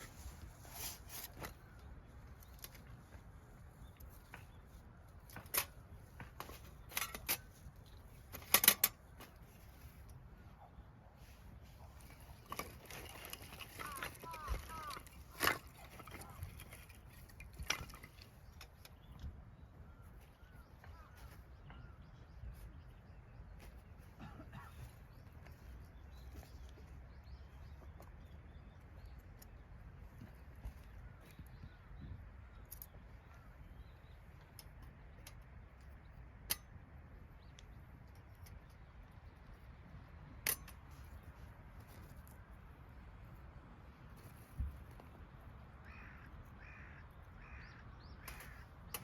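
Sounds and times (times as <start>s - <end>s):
small birds chirping: 13.5s - 36.3s, 45.6s - 49.0s.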